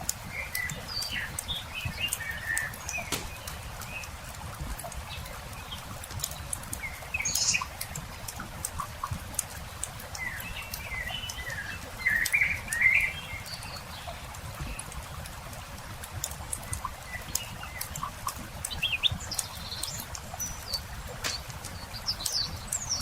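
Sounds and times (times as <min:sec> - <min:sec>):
campfire crackling and popping: 0:00.0 - 0:13.2, 0:14.2 - 0:23.0
small birds chirping: 0:00.1 - 0:23.0.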